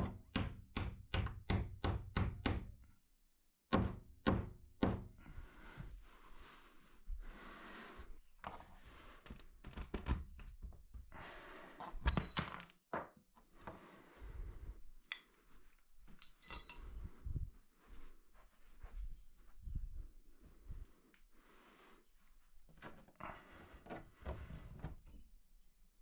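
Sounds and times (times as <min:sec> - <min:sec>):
metallic clinks: 0:16.1 - 0:17.1.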